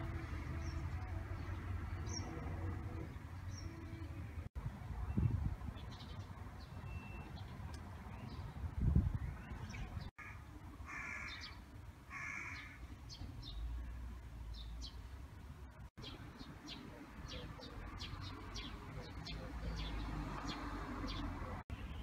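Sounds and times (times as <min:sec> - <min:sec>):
low outdoor rumble: 0:00.0 - 0:05.7
small birds chirping: 0:00.6 - 0:04.4, 0:16.0 - 0:22.0.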